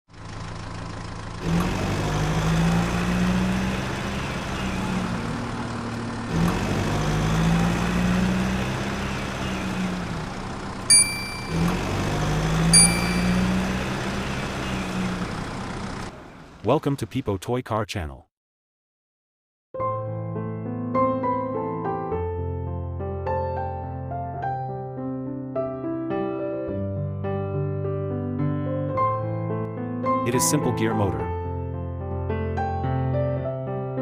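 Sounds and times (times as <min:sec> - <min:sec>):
engine-like drone: 0:00.1 - 0:17.0
short bell dings: 0:10.9 - 0:11.9, 0:12.7 - 0:13.7.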